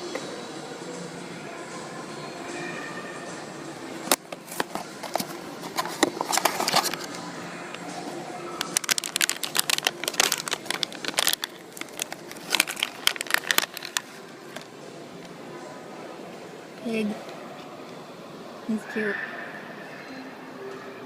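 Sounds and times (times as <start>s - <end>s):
packaging crinkling as torn open: 4.6s - 7.2s, 8.6s - 14.7s.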